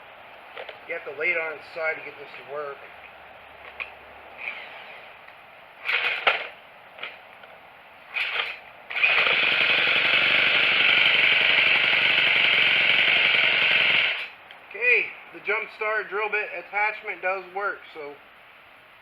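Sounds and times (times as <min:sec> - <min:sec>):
drill cranking engine: 0:04.4 - 0:05.1, 0:05.8 - 0:07.2, 0:08.1 - 0:14.4
string trimmer engine running: 0:05.8 - 0:07.2, 0:08.1 - 0:14.4.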